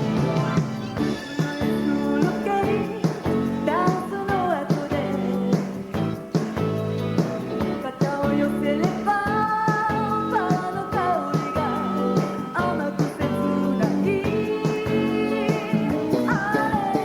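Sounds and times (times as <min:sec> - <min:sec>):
bass: 0:00.0 - 0:17.0
drums: 0:00.0 - 0:17.0
woman singing: 0:01.4 - 0:05.7, 0:07.7 - 0:17.0.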